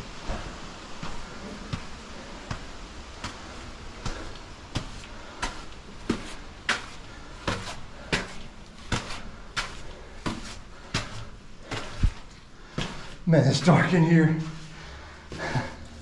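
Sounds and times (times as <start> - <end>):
footsteps on a trail: 0.0 - 16.0.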